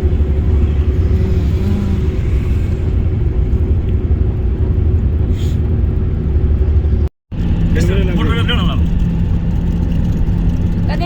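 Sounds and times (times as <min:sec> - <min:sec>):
vehicle rumbling: 0:00.0 - 0:11.0.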